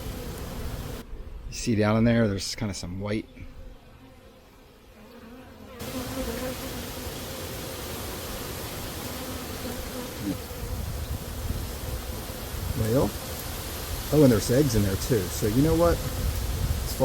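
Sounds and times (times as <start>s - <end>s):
honeybees buzzing: 0.0s - 1.6s, 2.6s - 17.0s
steady hiss: 0.0s - 1.8s, 5.8s - 17.0s.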